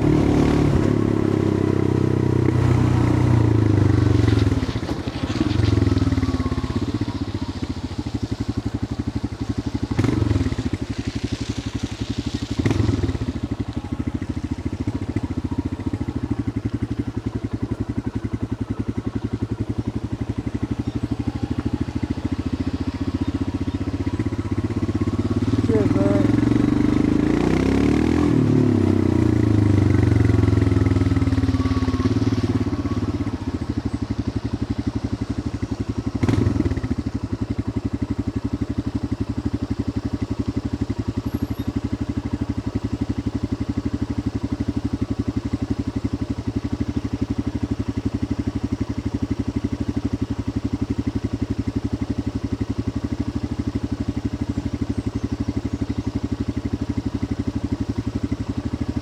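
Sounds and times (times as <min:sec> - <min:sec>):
motorcycle engine thumping: 0:00.0 - 0:11.1.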